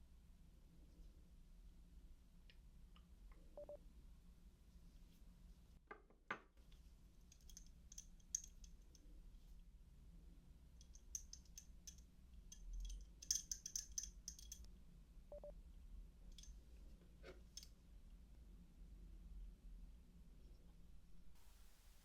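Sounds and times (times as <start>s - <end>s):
socket wrench ratchet clicking: 13.2s - 14.7s.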